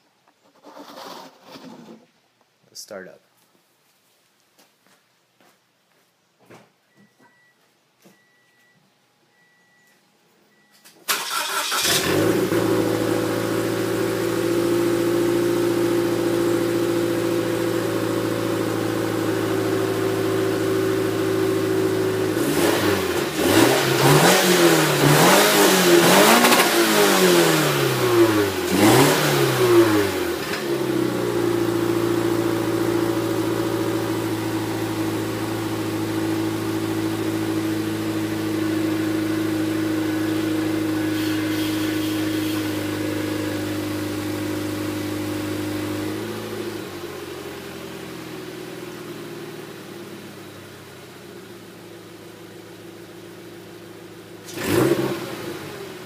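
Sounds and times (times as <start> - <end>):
car engine starting: 10.5 - 56.0
car engine idling: 11.1 - 24.1, 29.9 - 41.0, 42.7 - 54.5
engine revving in quick blips: 22.4 - 30.9, 54.4 - 56.0.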